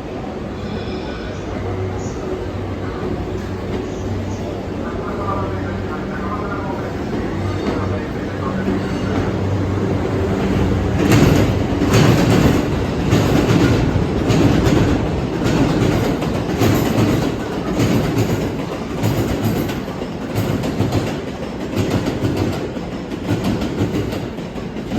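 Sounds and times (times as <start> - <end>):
steady train hum: 0.0 - 24.9
wheels clacking over rail joints: 8.6 - 24.9.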